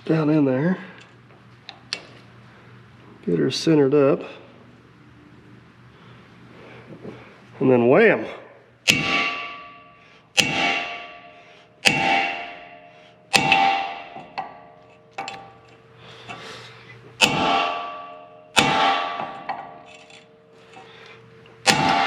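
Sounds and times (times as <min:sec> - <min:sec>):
hammer striking crimping tool: 0:08.8 - 0:16.4, 0:17.2 - 0:20.9, 0:21.6 - 0:22.0.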